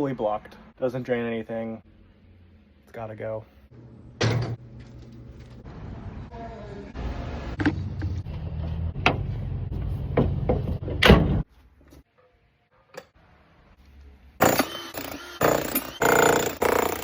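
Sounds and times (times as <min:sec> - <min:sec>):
jackhammer breaking concrete: 0:14.4 - 0:17.0.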